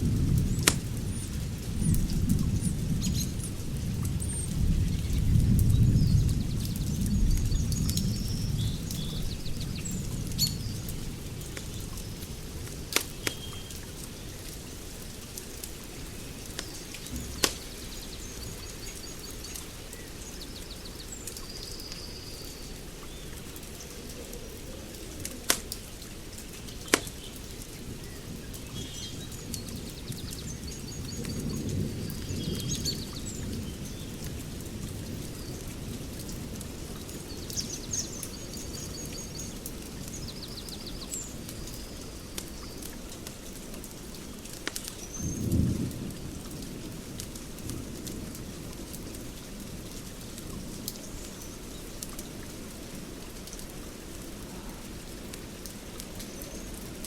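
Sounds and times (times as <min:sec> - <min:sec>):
fire popping: 0:00.0 - 0:02.6, 0:03.2 - 0:20.7, 0:23.4 - 0:27.9, 0:44.4 - 0:51.0
fire crackling: 0:00.0 - 0:22.0, 0:22.6 - 0:31.8, 0:39.5 - 0:57.0
steady low hiss: 0:00.0 - 0:57.0.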